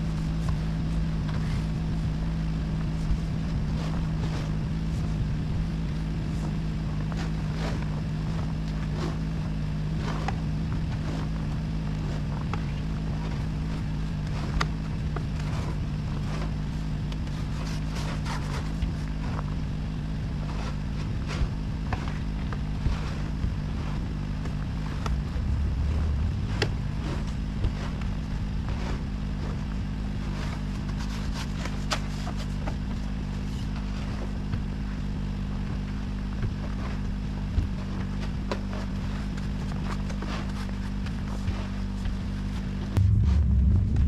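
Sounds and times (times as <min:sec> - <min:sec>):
motor droning: 0:00.0 - 0:44.0.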